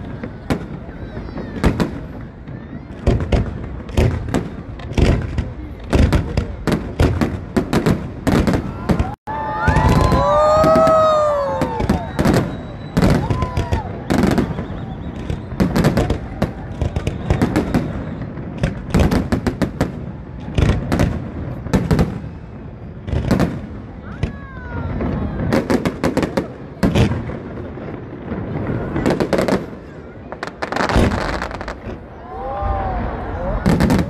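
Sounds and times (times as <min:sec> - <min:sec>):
crackling firework reports: 0:00.0 - 0:34.0
firework bursts and bangs: 0:00.0 - 0:34.0.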